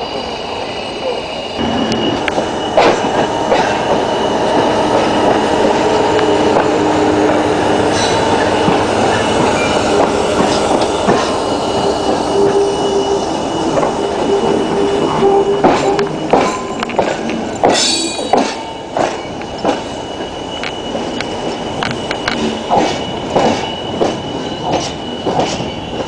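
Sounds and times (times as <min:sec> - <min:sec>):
train wheels rumbling on rail: 0:00.0 - 0:26.0
wheel squeal: 0:00.0 - 0:26.0.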